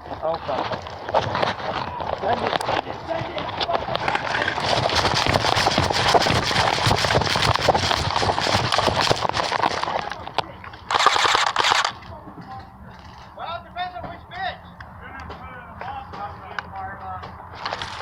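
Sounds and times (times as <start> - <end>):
running footsteps: 0.0 - 12.4
equipment rattling: 0.5 - 12.0
loud rattling burst: 3.8 - 10.1, 10.9 - 12.0.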